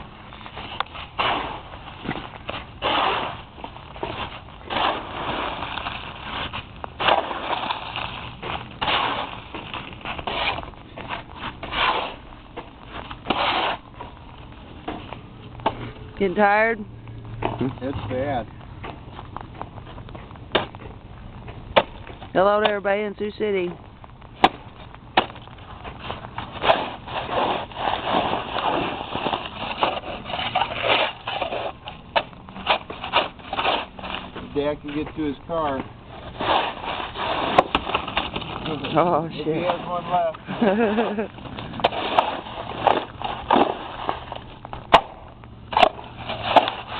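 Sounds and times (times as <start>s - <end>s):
shovel scraping icy slush: 0.6s - 1.7s, 2.8s - 9.4s, 10.0s - 12.2s, 13.2s - 13.8s, 26.0s - 31.8s, 36.2s - 38.1s, 41.8s - 44.4s, 45.8s - 46.9s.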